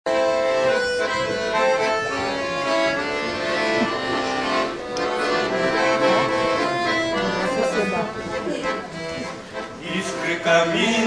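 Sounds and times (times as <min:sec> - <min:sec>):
accordion melody: 0:00.1 - 0:11.0.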